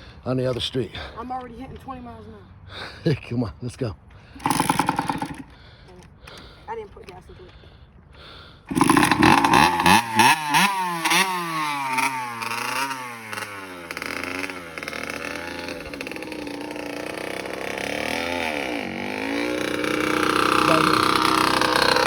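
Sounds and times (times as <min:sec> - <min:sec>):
dirt bike engine revving: 0:04.4 - 0:05.5, 0:08.7 - 0:22.0.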